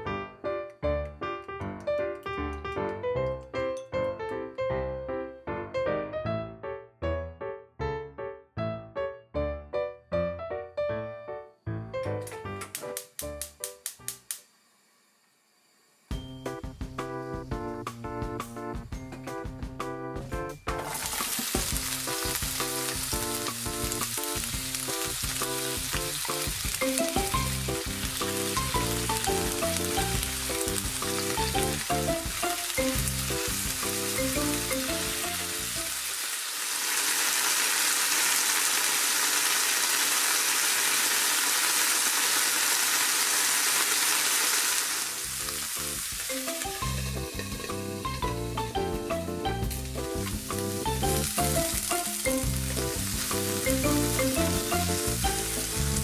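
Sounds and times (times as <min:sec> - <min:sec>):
background music: 0:00.0 - 0:14.0, 0:16.1 - 0:36.0, 0:45.3 - 0:56.0
food sizzling in frying pan: 0:20.7 - 0:56.0.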